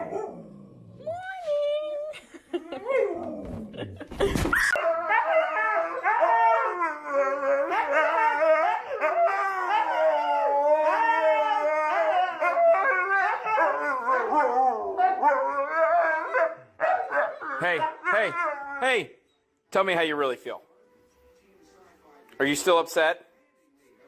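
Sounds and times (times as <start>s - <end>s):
dog howling: 4.7s - 18.8s.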